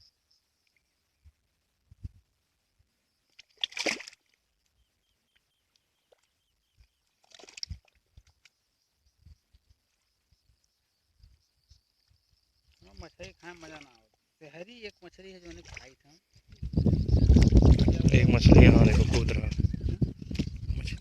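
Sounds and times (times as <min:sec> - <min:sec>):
pond water splashing: 0:03.2 - 0:04.8, 0:05.4 - 0:08.8, 0:12.5 - 0:20.9.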